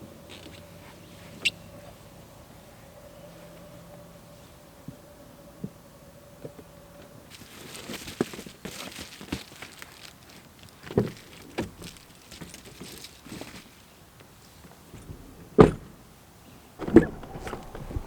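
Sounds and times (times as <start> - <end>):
knocks and clunks of truck door: 15.5 - 16.0, 16.8 - 18.0
loud thuds: 16.8 - 18.0.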